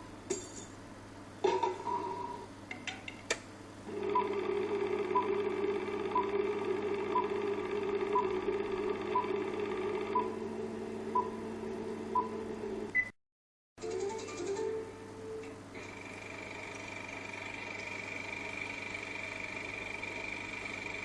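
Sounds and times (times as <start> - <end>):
droning hum of held tones: 3.7 - 12.9, 13.8 - 21.0.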